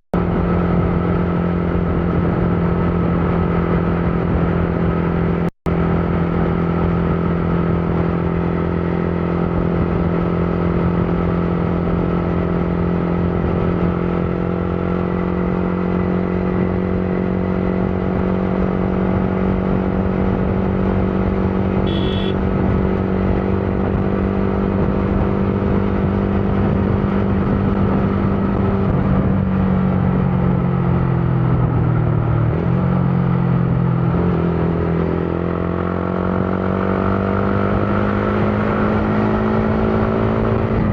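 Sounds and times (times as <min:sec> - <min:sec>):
motorcycle engine running: 0:00.2 - 0:40.9
brief high-pitched tone: 0:21.9 - 0:22.4.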